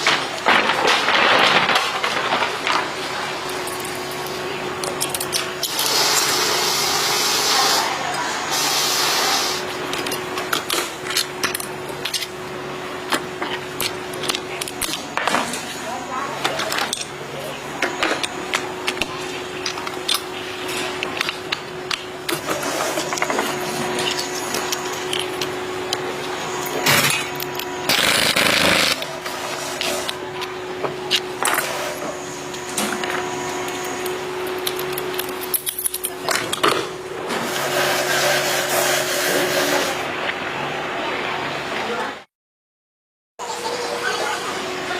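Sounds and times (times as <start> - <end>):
mechanical hum: 0.0 - 42.3, 43.4 - 44.9
workshop machine hissing: 2.9 - 35.1, 36.7 - 40.2.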